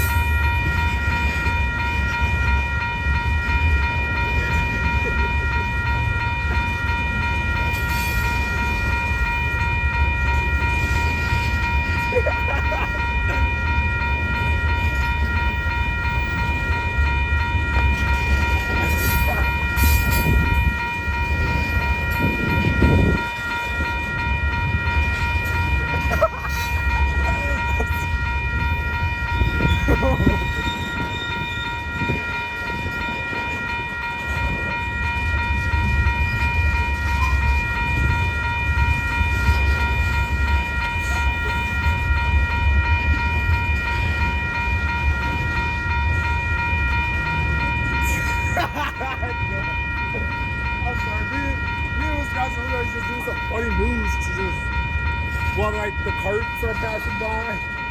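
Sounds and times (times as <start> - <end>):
freight train cars rumbling: 0.0 - 57.9.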